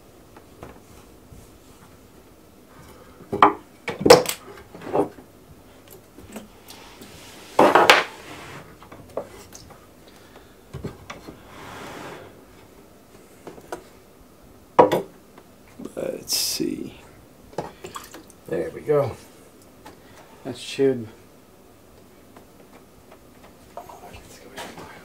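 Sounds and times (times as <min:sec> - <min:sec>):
scrape on workbench: 0:06.7 - 0:08.8, 0:11.3 - 0:12.4.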